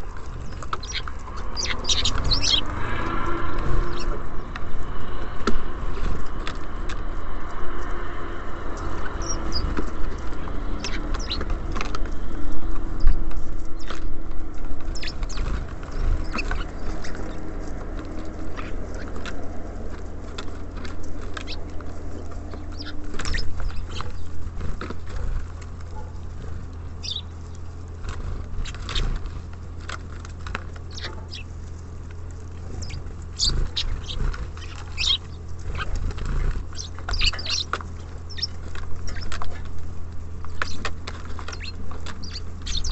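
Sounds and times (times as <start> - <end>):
birds pecking on feeder: 0.0 - 42.9
high bird chirps: 0.4 - 2.7, 8.8 - 11.6, 14.9 - 17.4, 21.1 - 24.3, 27.0 - 27.3, 30.9 - 31.5, 32.7 - 39.7, 40.5 - 42.9.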